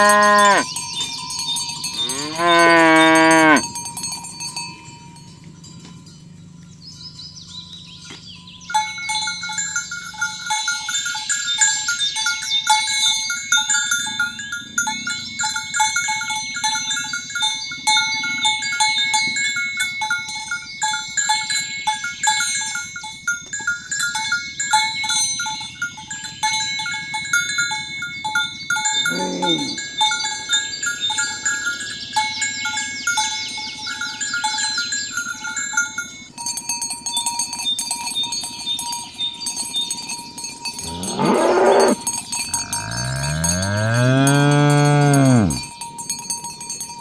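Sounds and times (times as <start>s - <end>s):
cow mooing: 0.0s - 0.7s, 2.0s - 3.7s, 29.0s - 30.0s, 40.8s - 45.6s
cattle bells clanking: 0.0s - 47.0s.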